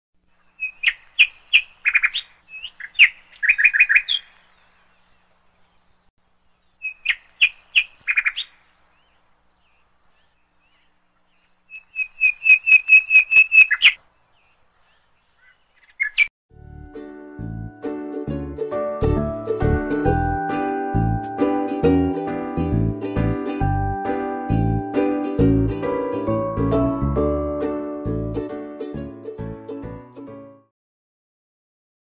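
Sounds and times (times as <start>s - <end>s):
songbird chirps and trills: 0.3s - 16.3s.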